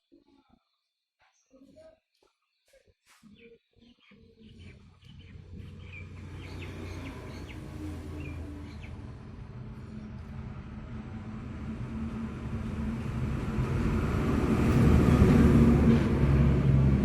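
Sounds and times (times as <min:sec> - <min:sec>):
birds chirping: 0:02.5 - 0:09.2.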